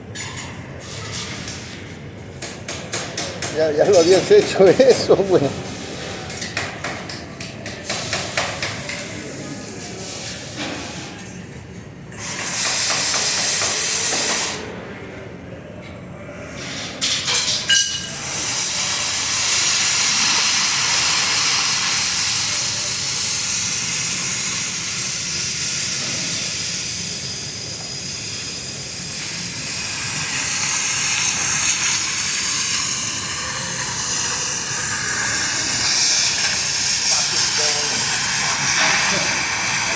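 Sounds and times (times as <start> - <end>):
welding arc crackling hiss: 2.9 - 5.9, 12.2 - 14.6, 17.0 - 39.9.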